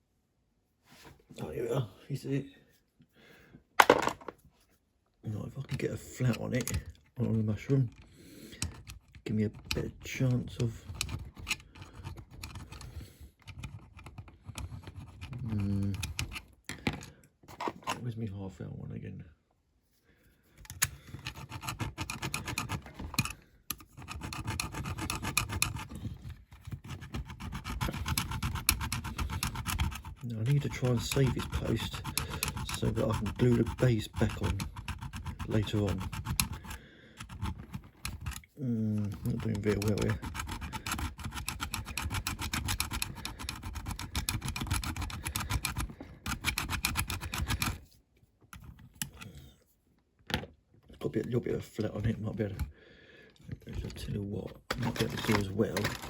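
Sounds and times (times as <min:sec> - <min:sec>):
hand file rasping on metal: 0:21.0 - 0:38.4, 0:39.0 - 0:47.9.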